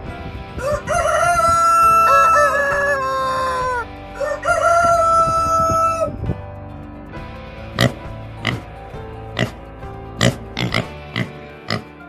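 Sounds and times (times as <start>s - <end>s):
background music: 0.0s - 12.0s
rooster crowing: 0.6s - 6.1s.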